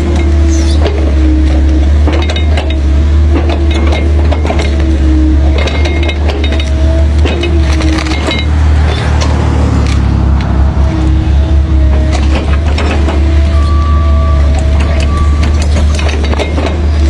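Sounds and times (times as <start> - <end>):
diesel engine rumble: 0.0 - 17.0
whining tone: 6.5 - 16.3.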